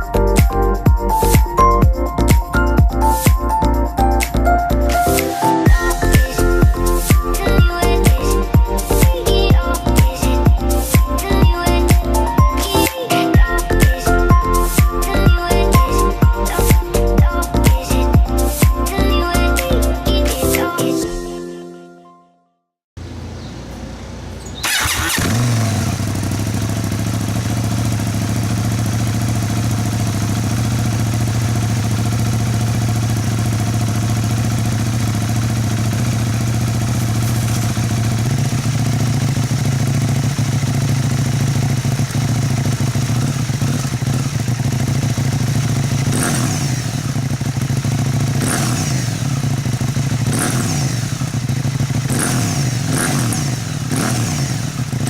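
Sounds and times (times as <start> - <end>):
motorcycle engine idling: 0.0 - 4.6, 5.7 - 12.8, 13.4 - 19.8, 23.0 - 55.0
throttle blips revving: 5.7 - 12.7, 46.0 - 47.1, 50.3 - 51.3, 52.1 - 54.8.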